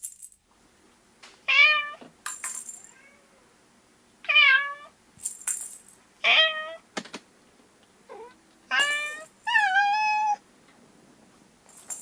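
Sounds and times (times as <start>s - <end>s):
cat meowing: 2.9s - 3.5s, 4.3s - 4.9s, 6.2s - 6.8s, 8.1s - 10.4s.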